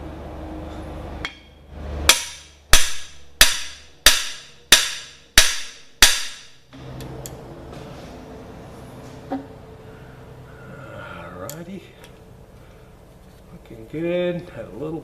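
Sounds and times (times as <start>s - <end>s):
hammer striking metal tool: 1.2s - 1.5s, 2.1s - 6.6s.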